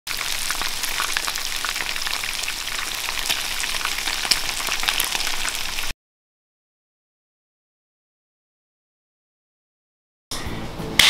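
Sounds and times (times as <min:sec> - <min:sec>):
chicken frying in oil: 0:00.1 - 0:06.0.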